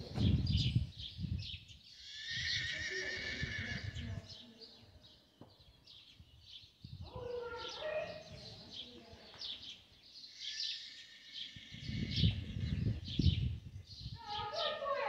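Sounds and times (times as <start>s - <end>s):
dull low thumps: 0.0s - 0.9s
small birds chirping: 0.0s - 15.0s.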